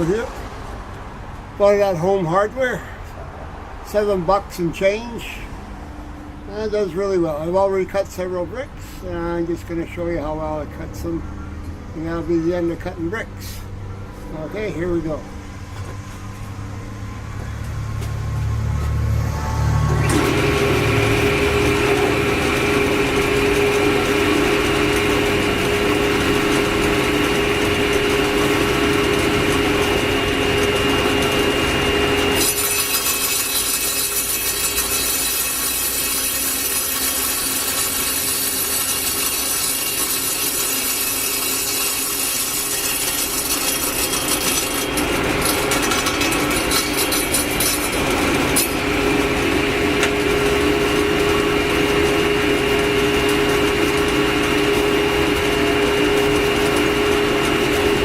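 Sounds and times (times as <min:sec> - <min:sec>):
power saw whining: 0:12.1 - 0:58.0
saw grinding into brick: 0:20.0 - 0:54.1.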